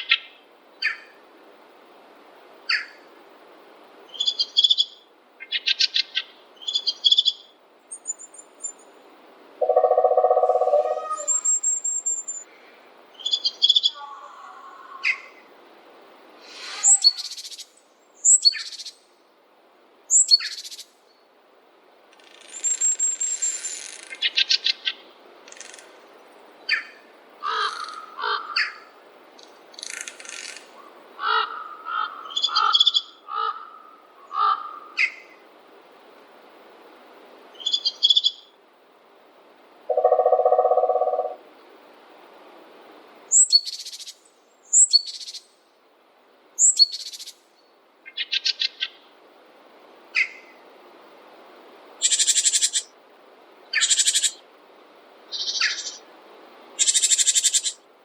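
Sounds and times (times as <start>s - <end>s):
songbirds calling: 0.0s - 1.2s, 2.7s - 3.1s, 4.1s - 15.5s, 16.4s - 19.2s, 20.1s - 21.2s, 22.1s - 35.4s, 37.5s - 38.6s, 39.9s - 41.7s, 43.3s - 45.6s, 46.6s - 49.1s, 50.1s - 50.6s, 52.0s - 53.0s, 53.6s - 54.4s, 55.3s - 56.1s, 56.8s - 57.8s
low steady bird call: 0.0s - 1.3s, 2.7s - 3.1s, 4.1s - 15.5s, 26.6s - 35.4s, 37.5s - 38.6s, 39.9s - 41.7s, 43.3s - 45.7s, 46.6s - 49.1s, 50.1s - 50.6s, 53.6s - 54.4s, 55.3s - 56.1s
rapid bird trill: 9.6s - 12.4s, 39.9s - 41.4s.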